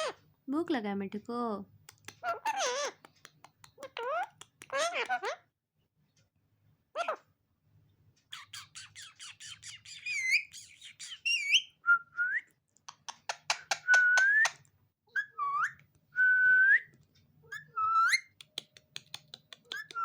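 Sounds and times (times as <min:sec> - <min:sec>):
parrot clicking and chattering: 0:01.8 - 0:05.4, 0:08.3 - 0:11.3, 0:12.8 - 0:14.6, 0:18.2 - 0:20.0
parrot whistling: 0:08.4 - 0:12.5, 0:13.5 - 0:16.9.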